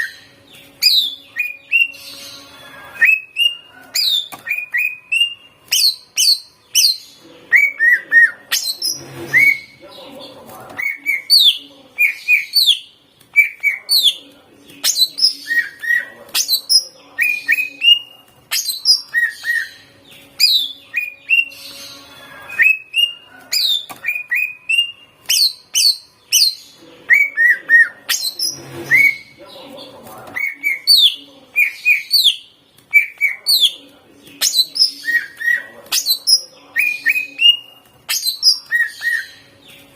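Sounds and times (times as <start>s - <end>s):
bird singing whistled notes: 20.4s - 29.3s.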